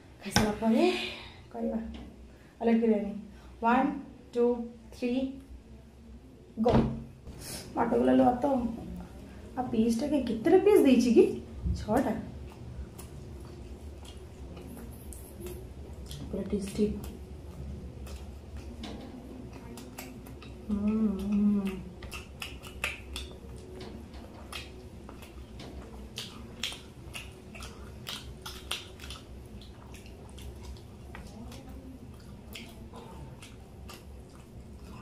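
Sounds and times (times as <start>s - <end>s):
people chewing and eating: 8.6s - 10.0s, 11.4s - 35.0s
wet mouth clicks and smacks: 12.4s - 17.2s, 19.5s - 35.0s.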